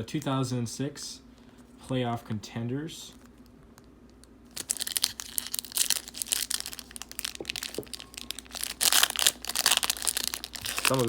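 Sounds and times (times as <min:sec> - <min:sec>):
foil wrapper crackling and tearing: 0:04.5 - 0:11.0.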